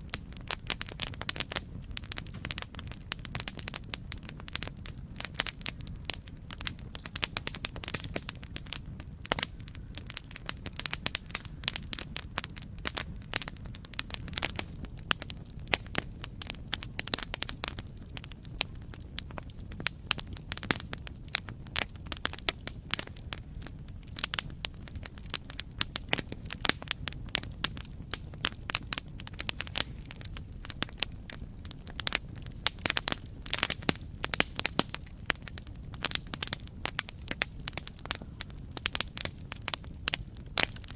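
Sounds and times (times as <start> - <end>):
burning wood popping and snapping: 0.0 - 40.9
low rumble of flames: 0.0 - 40.9.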